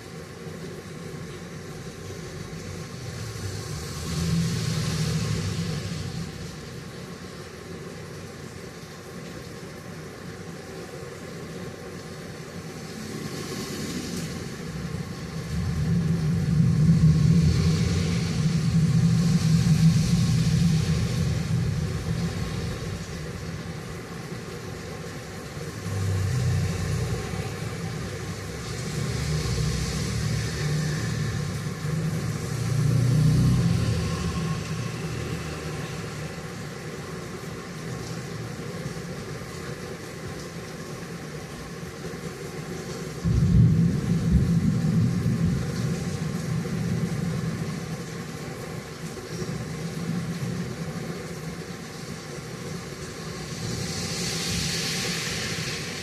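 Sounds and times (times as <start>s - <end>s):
rain falling: 0.0s - 56.0s
low rumble: 14.8s - 24.0s, 43.2s - 47.1s.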